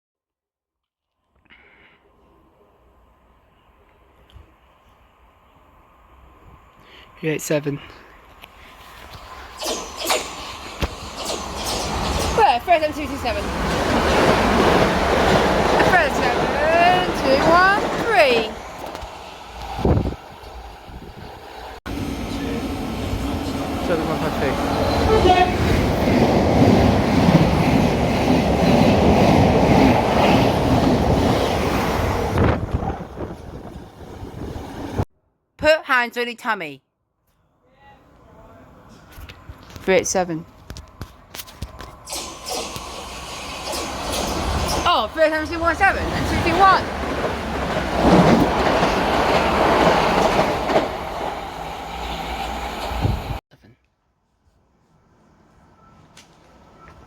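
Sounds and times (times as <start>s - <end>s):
train wheels rumbling on rails: 9.3s - 35.0s, 41.4s - 53.4s
clatter over rail joints: 9.6s - 19.7s, 41.4s - 51.4s.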